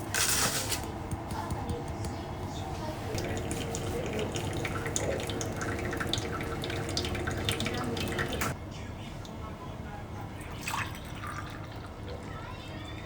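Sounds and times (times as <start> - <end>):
tap water running into sink: 3.1 - 8.6.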